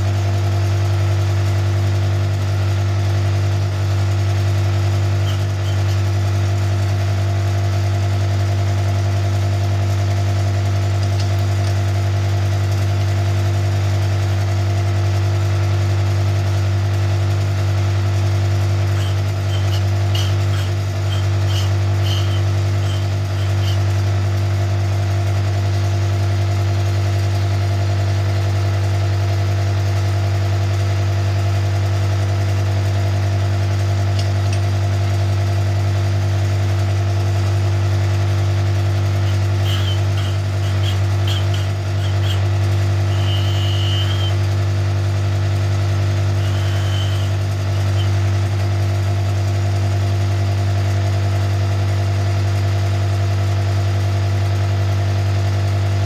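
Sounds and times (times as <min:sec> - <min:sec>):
cutting machine motor humming: 0:03.9 - 0:08.2, 0:16.2 - 0:28.9, 0:33.2 - 0:50.6
high-pitched squeaks: 0:05.2 - 0:06.0, 0:18.8 - 0:24.0, 0:39.1 - 0:44.5, 0:46.4 - 0:48.2.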